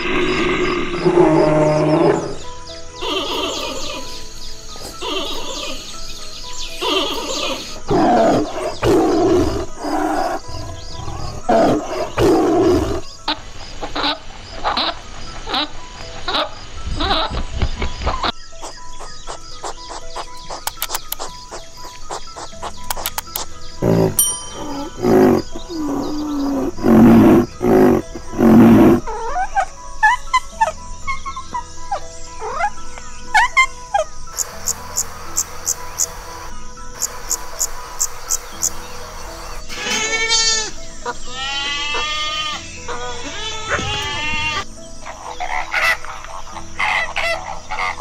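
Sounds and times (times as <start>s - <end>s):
rhinoceros calling: 0.0s - 15.7s, 19.3s - 31.5s, 33.3s - 48.0s
tiger roaring: 6.8s - 13.1s, 23.8s - 29.1s
high chirping glides: 18.3s - 45.7s.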